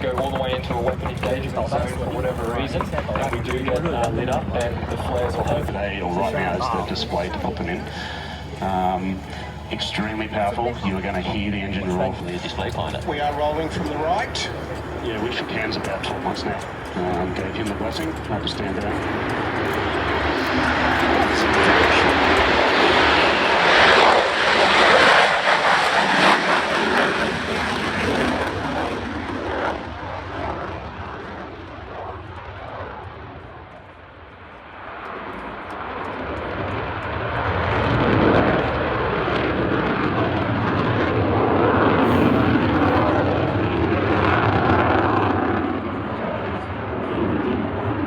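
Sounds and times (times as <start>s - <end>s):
jet engine flying past: 0.0s - 48.0s.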